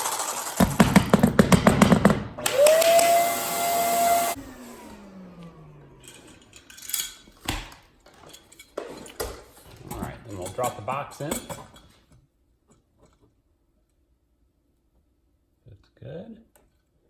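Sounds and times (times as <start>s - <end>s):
power saw cutting wood: 2.4s - 5.9s.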